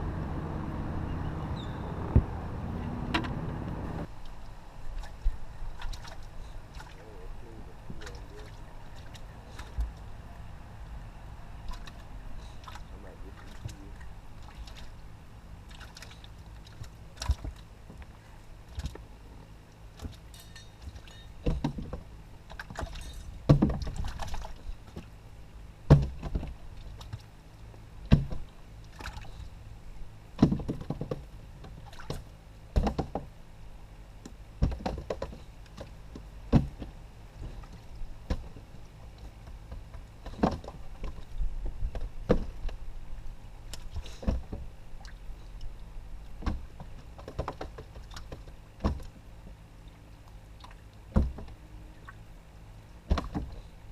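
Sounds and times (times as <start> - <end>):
low steady hum: 0.0 - 53.9
hollow knocks on boat hull: 25.9 - 26.5, 32.8 - 33.3, 36.5 - 37.6, 51.1 - 51.6, 53.1 - 53.6.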